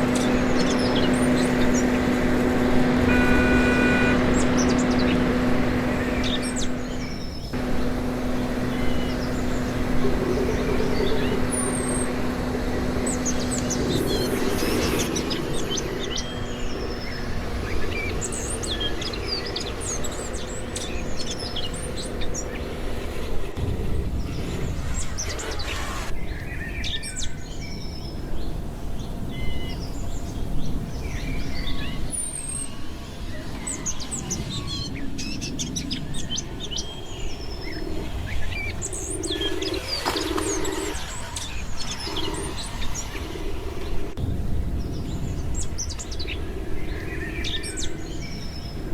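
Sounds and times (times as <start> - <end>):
mechanical hum: 0.0 - 26.1
low outdoor rumble: 0.0 - 26.6, 27.5 - 48.9
small birds chirping: 0.0 - 48.9.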